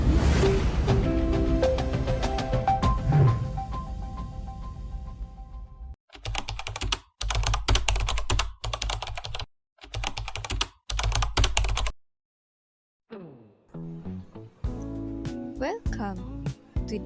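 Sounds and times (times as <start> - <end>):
rapid keyboard typing: 6.1 - 12.0.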